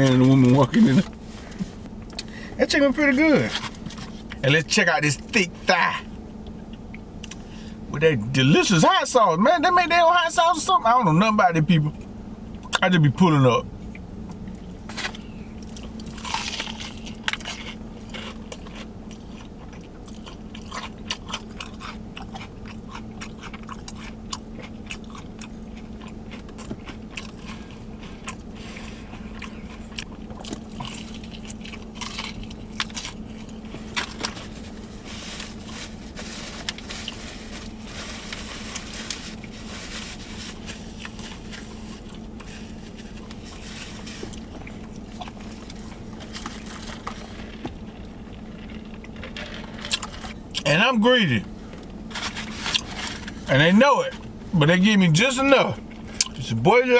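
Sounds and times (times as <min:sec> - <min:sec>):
steady low hum: 0:00.0 - 0:56.9
crunching and chewing fried chicken: 0:13.6 - 0:56.6.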